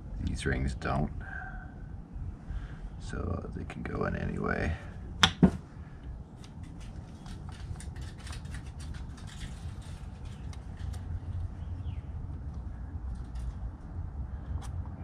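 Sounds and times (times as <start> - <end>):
sharp knocks: 5.2 - 5.6.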